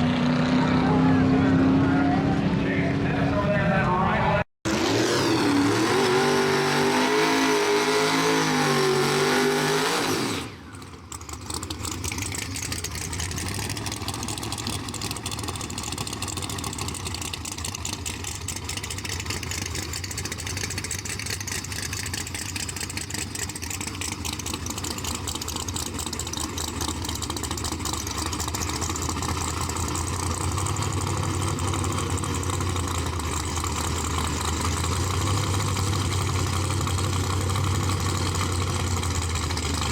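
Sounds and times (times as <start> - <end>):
racing car engine at high revs: 0.0 - 3.5, 4.6 - 39.9
engine rumbling idle: 10.5 - 39.9.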